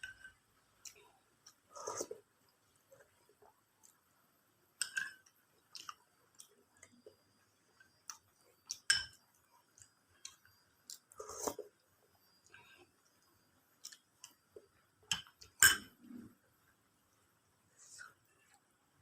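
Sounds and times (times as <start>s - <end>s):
person chewing food: 4.8s - 16.3s.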